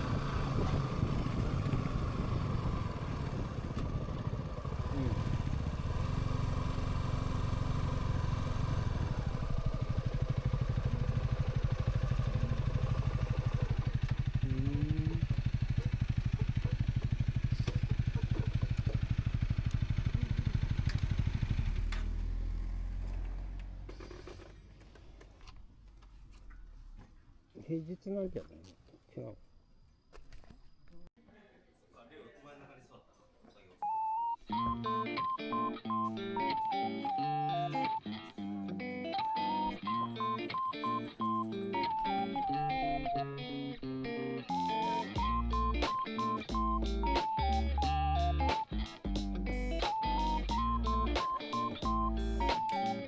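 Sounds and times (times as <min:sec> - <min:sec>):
motorcycle engine running: 0:00.0 - 0:24.7, 0:44.4 - 0:53.0.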